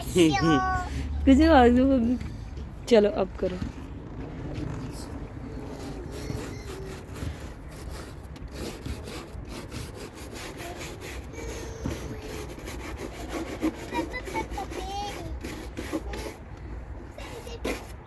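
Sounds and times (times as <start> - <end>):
wind rumbling on microphone: 1.1 - 13.0
car being scrubbed: 4.9 - 18.0.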